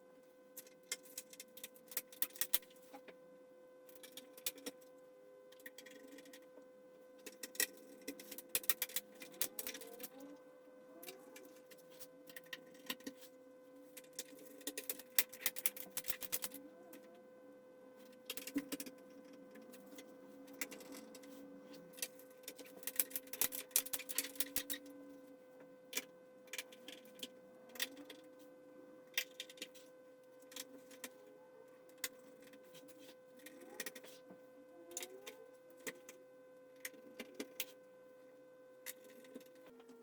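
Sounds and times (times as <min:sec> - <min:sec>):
faint steady whine: 0:00.0 - 0:40.0
small hard parts clicking and rattling: 0:00.6 - 0:03.0, 0:05.5 - 0:06.6, 0:07.2 - 0:10.4, 0:13.9 - 0:17.1, 0:18.0 - 0:25.0, 0:25.9 - 0:28.4, 0:29.1 - 0:31.2, 0:31.9 - 0:36.2.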